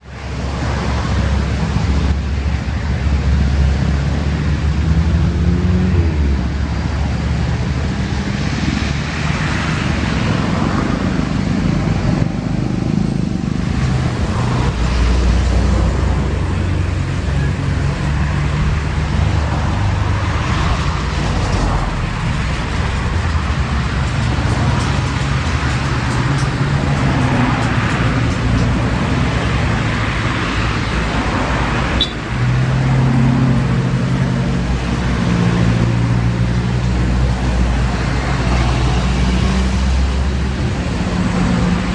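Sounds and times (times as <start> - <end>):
low engine rumble: 0.0 - 41.9
road noise: 0.0 - 41.9.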